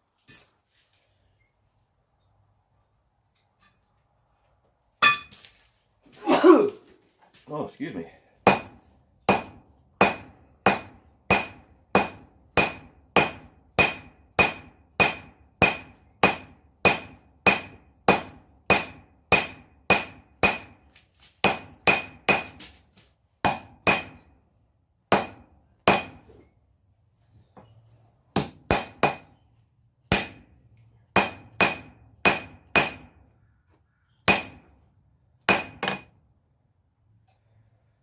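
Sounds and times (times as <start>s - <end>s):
hammer striking steel on anvil: 5.0s - 5.4s, 8.5s - 20.8s, 21.4s - 22.6s, 23.4s - 24.2s, 25.1s - 26.2s, 30.1s - 30.4s, 31.2s - 33.1s, 34.3s - 34.7s, 35.5s - 36.1s.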